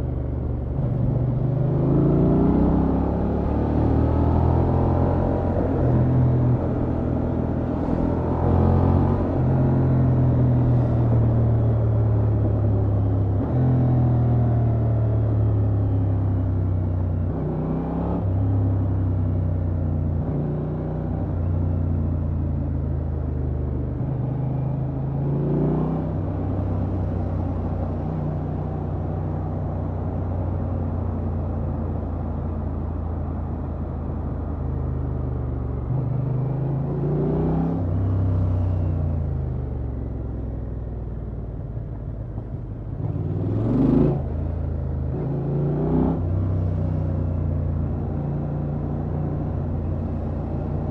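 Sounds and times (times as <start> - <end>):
motorcycle engine revving: 42.9 - 50.9.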